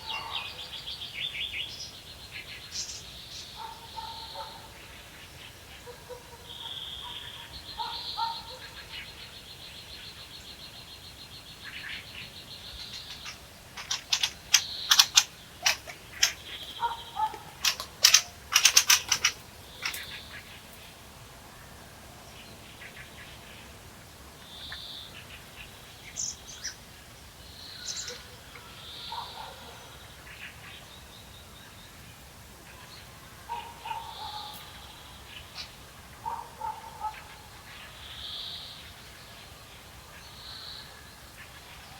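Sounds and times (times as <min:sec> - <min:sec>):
rapid high bird trill: 0:13.0 - 0:20.5
sharp clicking bird notes: 0:13.8 - 0:20.2.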